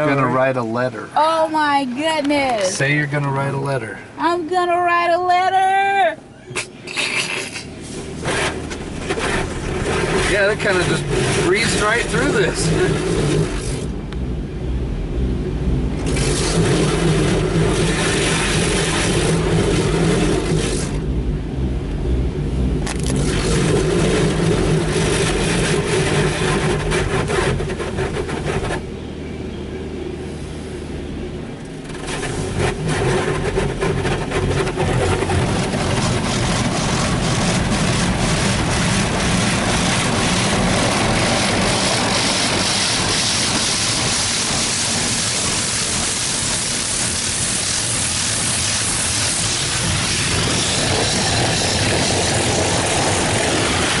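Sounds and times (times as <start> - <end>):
car wash machinery hum: 0.0 - 54.0
rushing spray: 6.6 - 14.0, 16.0 - 21.0, 22.9 - 28.8, 31.8 - 54.0.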